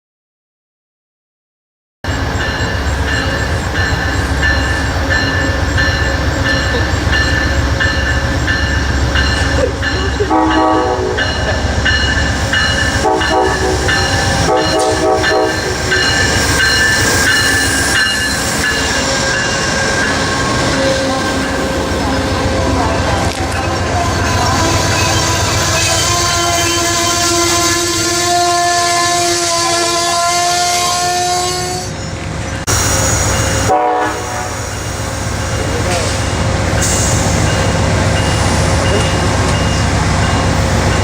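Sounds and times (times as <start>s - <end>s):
train whine: 2.0s - 41.0s
train wheels rumbling on rail: 2.1s - 41.0s
train horn blasts: 10.2s - 11.6s, 12.8s - 16.4s, 20.7s - 31.9s, 33.6s - 34.8s.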